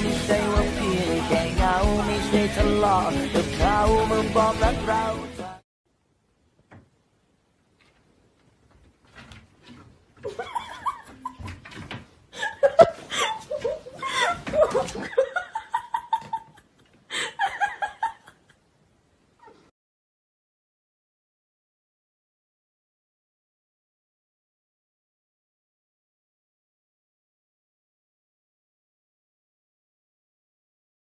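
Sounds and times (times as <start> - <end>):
music track: 0.0 - 5.6
laughter: 10.2 - 11.7, 12.3 - 18.6.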